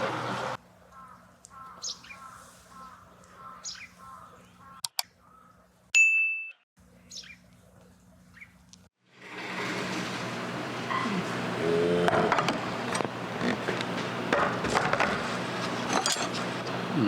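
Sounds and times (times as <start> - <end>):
bird chirps: 1.0 - 5.6, 7.0 - 7.4.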